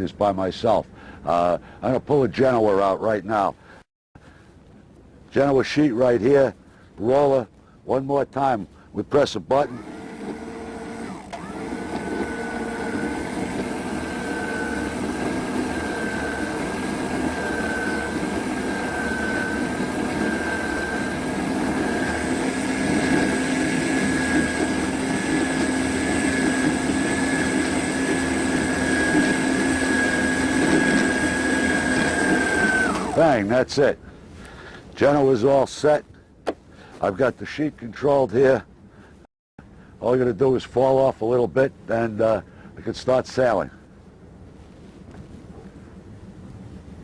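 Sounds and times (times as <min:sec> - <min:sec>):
electric winch motor whine: 0:09.6 - 0:33.4.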